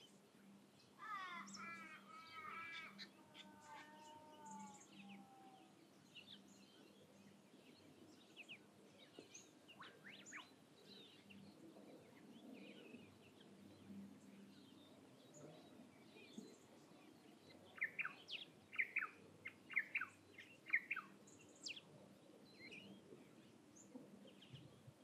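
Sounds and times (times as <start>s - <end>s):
wild birds calling: 1.0s - 6.4s.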